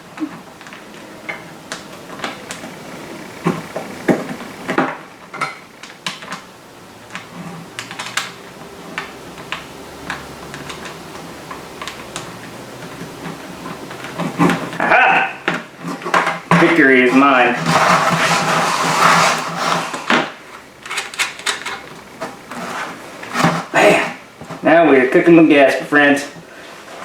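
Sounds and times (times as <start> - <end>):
hardware tapping a plastic bucket: 7.1 - 27.0.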